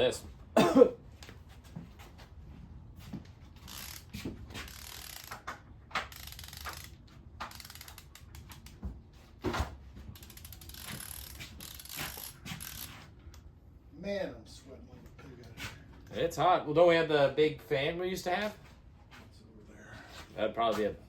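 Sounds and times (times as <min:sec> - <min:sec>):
socket wrench ratcheting: 0:03.7 - 0:08.8, 0:10.2 - 0:12.9.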